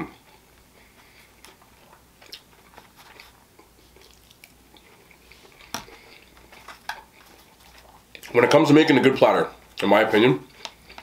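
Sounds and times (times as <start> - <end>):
faint chewing: 0.1 - 8.5, 10.5 - 11.0.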